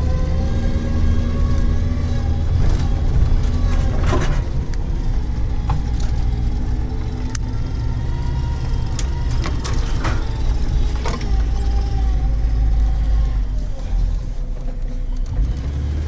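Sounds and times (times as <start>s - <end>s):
off-road vehicle engine running: 0.0s - 16.0s.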